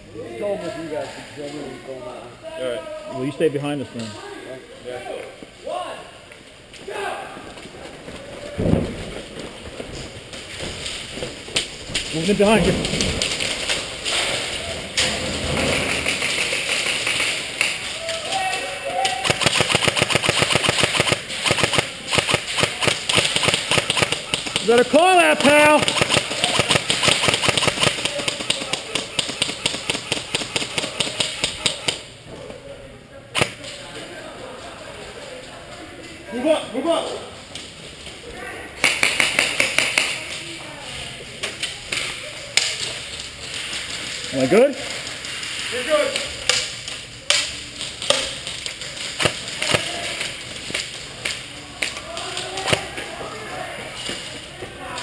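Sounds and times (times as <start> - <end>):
arena background din: 0.0 - 55.0
airsoft guns firing rapidly: 19.0 - 32.1, 49.2 - 50.0.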